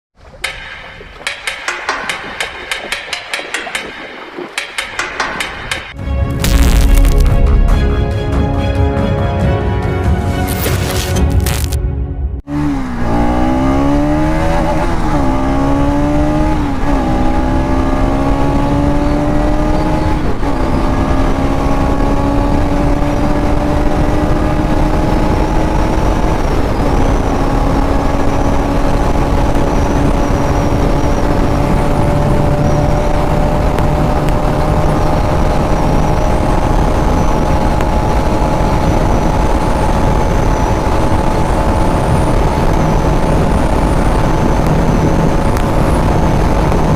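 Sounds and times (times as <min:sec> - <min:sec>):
motorcycle engine accelerating: 0:12.4 - 0:46.9.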